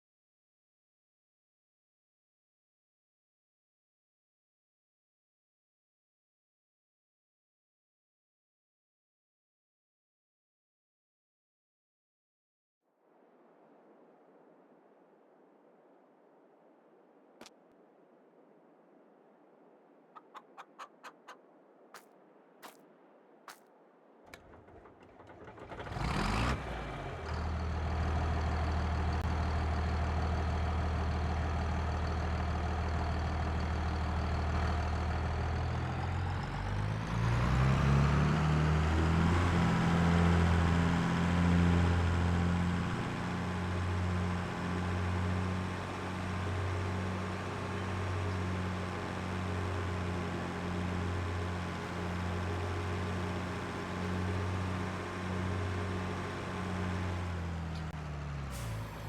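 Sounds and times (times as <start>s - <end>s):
tractor engine running: 24.3s - 59.0s.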